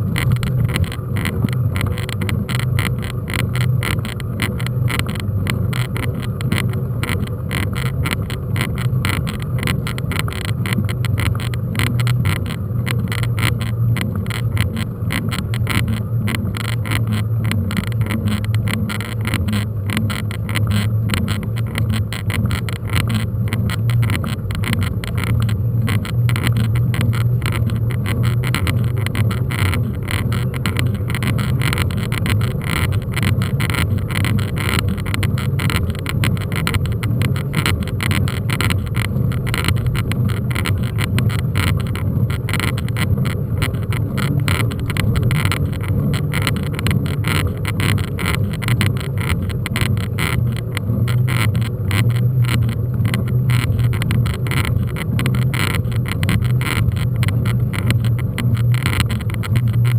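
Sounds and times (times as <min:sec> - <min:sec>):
bike rattling: 0:00.0 - 0:59.9
mountain bike riding rumble: 0:00.0 - 0:59.9.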